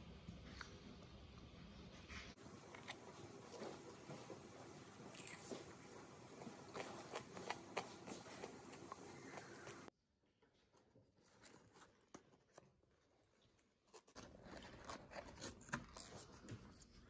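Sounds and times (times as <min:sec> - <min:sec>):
person chewing fries: 0:02.4 - 0:09.9.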